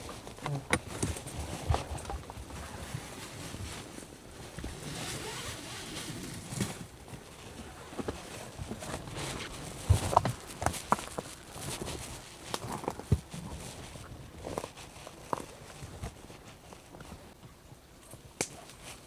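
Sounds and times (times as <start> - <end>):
footsteps on forest trail: 8.1 - 15.6.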